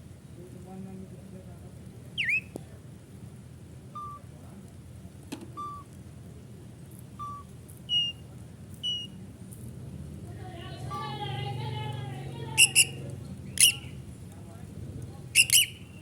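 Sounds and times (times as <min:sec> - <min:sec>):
starling whistling calls: 0:02.2 - 0:02.6, 0:04.0 - 0:04.2, 0:07.2 - 0:08.2, 0:08.8 - 0:09.2, 0:12.6 - 0:13.0, 0:13.6 - 0:14.0, 0:15.4 - 0:16.0.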